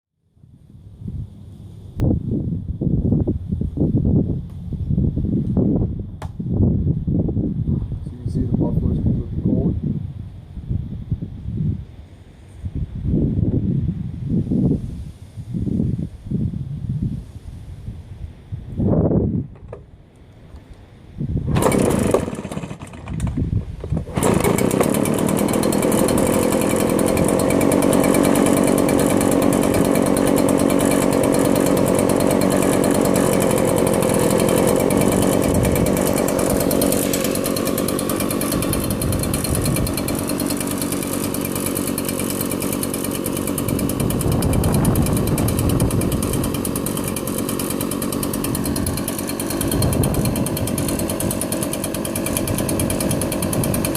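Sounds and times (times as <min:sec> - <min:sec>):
leaf blower engine starting: 0:19.4 - 0:20.8, 0:21.4 - 0:53.9.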